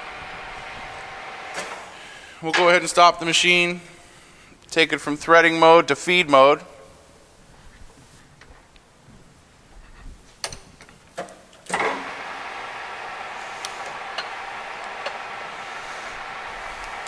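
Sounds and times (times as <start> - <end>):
lathe running with light ticks: 11.7 - 17.0.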